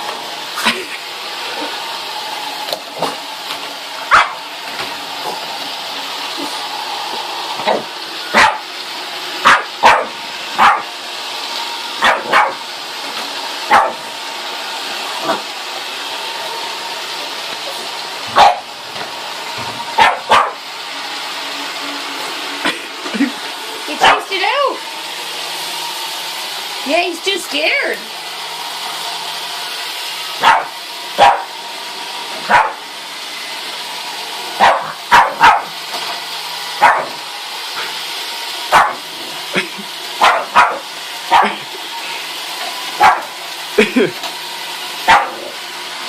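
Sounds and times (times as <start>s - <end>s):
robot vacuum whirring: 0.0s - 46.0s
dog barking sharply: 4.1s - 4.4s, 8.4s - 8.6s, 9.4s - 10.9s, 12.0s - 12.6s, 13.7s - 14.0s, 18.4s - 18.6s, 20.0s - 20.6s, 30.4s - 31.5s, 32.5s - 32.8s, 34.6s - 35.7s, 36.8s - 37.2s, 38.7s - 39.0s, 40.2s - 41.5s, 43.0s - 43.3s, 45.1s - 45.4s.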